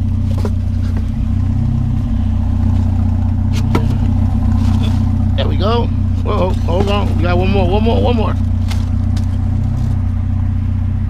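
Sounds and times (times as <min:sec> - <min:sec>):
vehicle engine idling: 0:00.0 - 0:11.0
scrap knocking and clanking: 0:02.6 - 0:05.4, 0:06.0 - 0:10.0.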